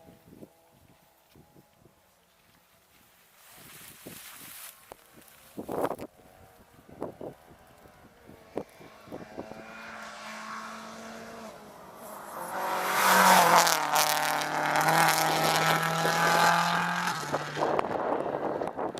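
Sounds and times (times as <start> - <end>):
rally car engine at speed: 6.1 - 18.9.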